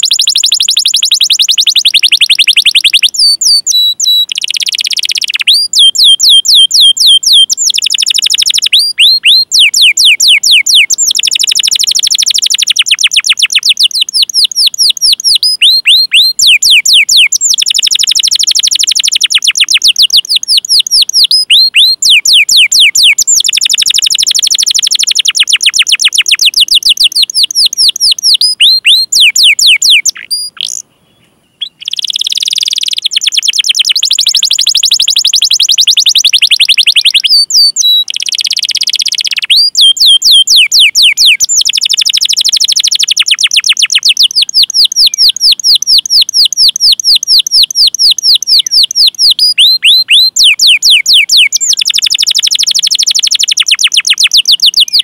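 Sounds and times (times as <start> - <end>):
canary singing: 0.0 - 55.0.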